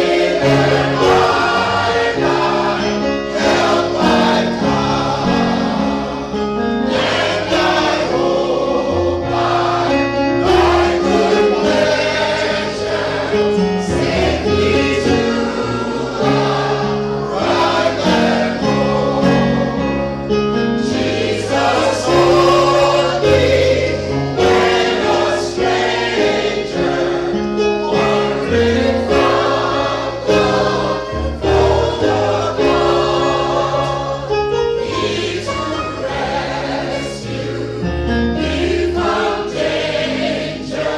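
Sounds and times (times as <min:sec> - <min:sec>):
choir singing gospel: 0:00.0 - 0:40.9
instrumental accompaniment: 0:00.0 - 0:40.9.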